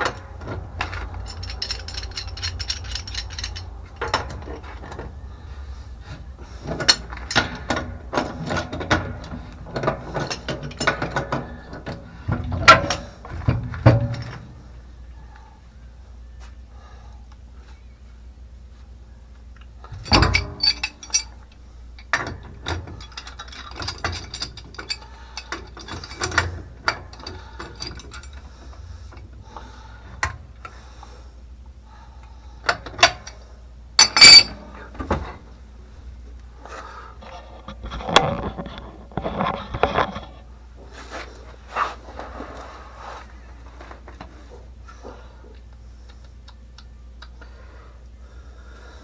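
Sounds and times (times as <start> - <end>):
hand tools on metal pipe fittings: 0.0 - 5.1, 5.7 - 14.7, 19.8 - 31.0, 34.0 - 35.4.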